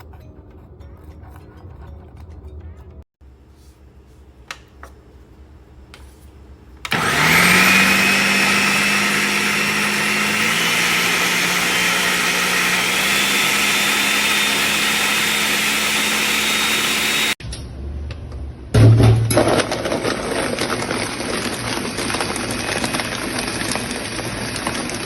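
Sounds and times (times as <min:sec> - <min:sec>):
blender motor whining: 0:06.9 - 0:17.4, 0:20.8 - 0:25.0.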